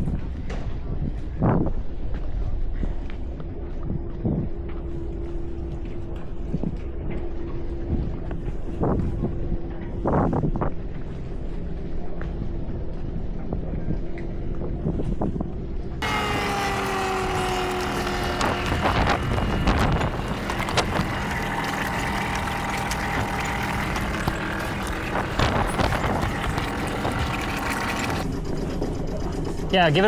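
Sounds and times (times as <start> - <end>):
boat engine running: 16.0 - 28.3
wind buffeting microphone: 16.0 - 28.3.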